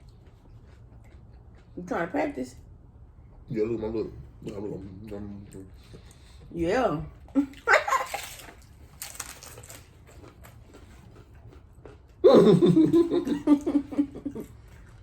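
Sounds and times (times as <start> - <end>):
tacos crunching while chewed: 0.0 - 2.0, 7.1 - 15.0.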